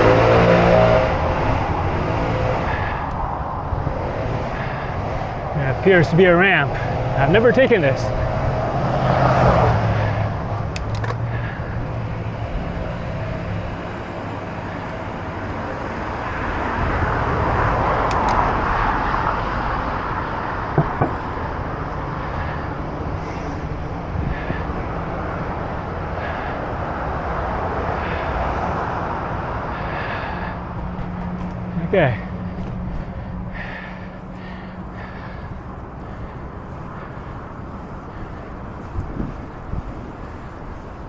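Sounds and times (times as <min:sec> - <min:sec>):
road traffic noise: 0:00.0 - 0:41.0
wind on microphone: 0:22.6 - 0:27.9, 0:32.6 - 0:41.0.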